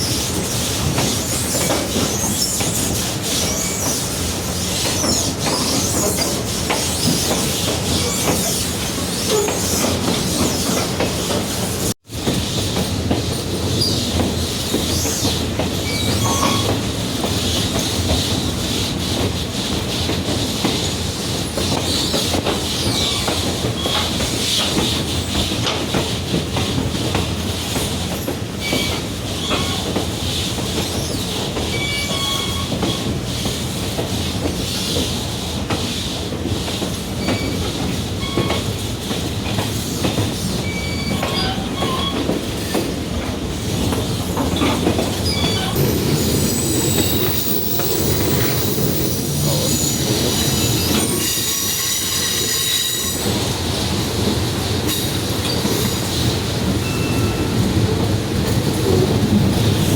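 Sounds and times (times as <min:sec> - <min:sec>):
train wheels rumbling on rails: 0:00.0 - 0:59.9
steel wheels squeaking: 0:04.8 - 0:11.4, 0:13.7 - 0:16.9, 0:31.0 - 0:33.1, 0:37.2 - 0:38.7, 0:40.4 - 0:42.8, 0:43.8 - 0:53.3
sustained wheel squeal: 0:15.8 - 0:16.8, 0:44.5 - 0:53.3.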